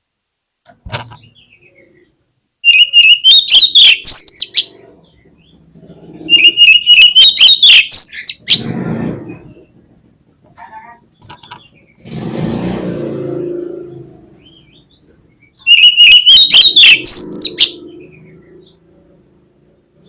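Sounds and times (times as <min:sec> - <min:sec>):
bird singing whistles and trills: 0:02.6 - 0:04.8, 0:06.2 - 0:08.6, 0:14.5 - 0:19.0.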